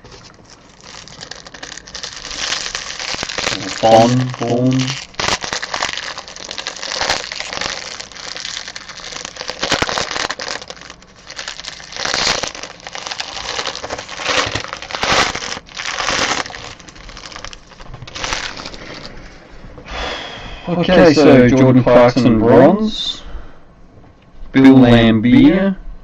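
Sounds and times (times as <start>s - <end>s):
wrapper tearing and crinkling: 0.0s - 19.2s.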